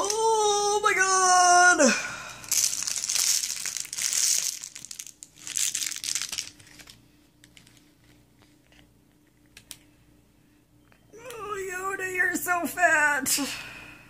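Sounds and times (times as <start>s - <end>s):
crinkle ball rustling: 2.4s - 9.5s.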